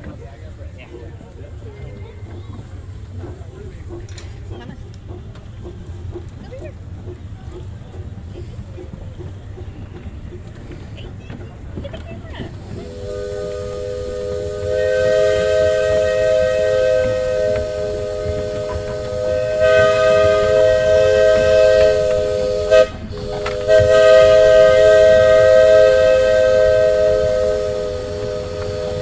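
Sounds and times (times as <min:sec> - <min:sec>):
steam locomotive chime whistle: 0:12.6 - 0:29.0.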